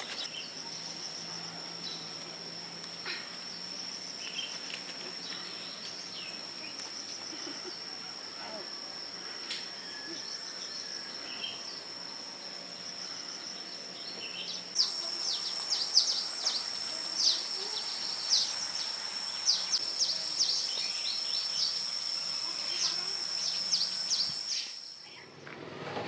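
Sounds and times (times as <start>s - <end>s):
high-pitched insect drone: 0.2s - 25.2s
bird chirping: 14.0s - 25.0s.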